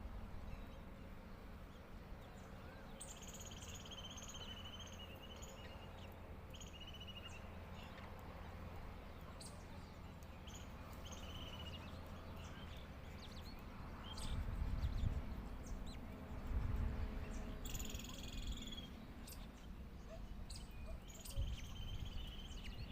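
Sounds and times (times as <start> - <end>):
bird chirps and calls: 17.2 - 22.9.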